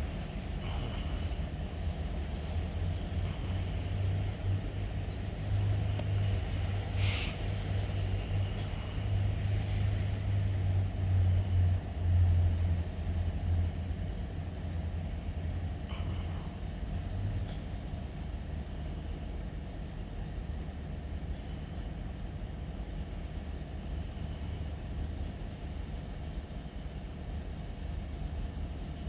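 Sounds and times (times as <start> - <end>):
diesel locomotive engine rumbling: 0.0 - 29.0
air hiss: 7.0 - 7.4.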